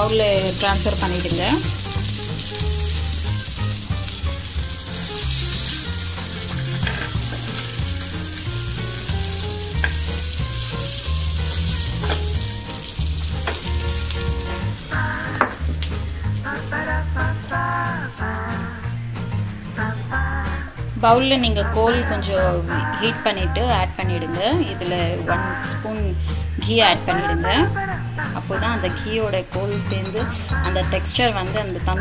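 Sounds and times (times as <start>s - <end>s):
chicken sizzling on griddle: 0.0s - 18.7s
metal spatula scraping: 5.1s - 7.8s.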